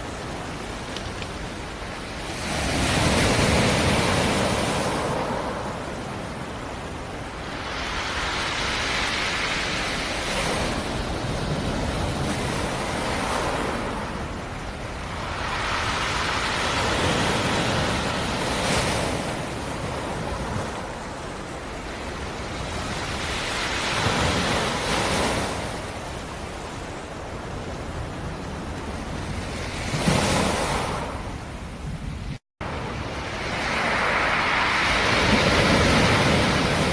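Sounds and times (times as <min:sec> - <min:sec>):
waves washing ashore: 0:00.0 - 0:36.9.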